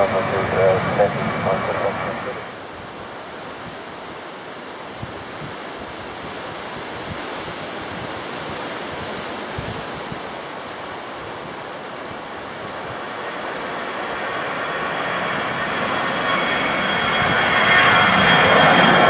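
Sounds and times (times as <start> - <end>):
faint high whine: 0.0 - 2.6
wind buffeting microphone: 0.0 - 13.2, 15.5 - 19.0.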